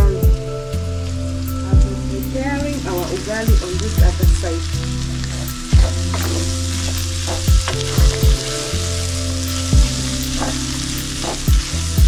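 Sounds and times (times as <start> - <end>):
food sizzling in a pan: 0.0 - 12.0
low background music: 0.0 - 12.0
wooden spoon scraping a pan: 5.2 - 11.8.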